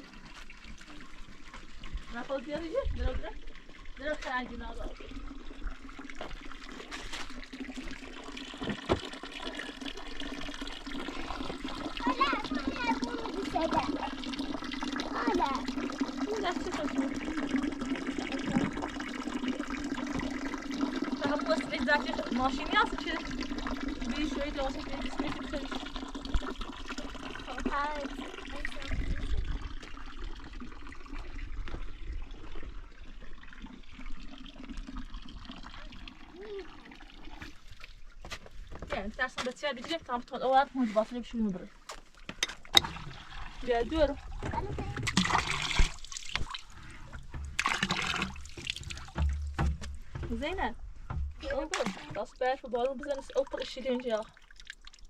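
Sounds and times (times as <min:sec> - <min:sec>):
water running and splashing: 0:00.0 - 0:55.0.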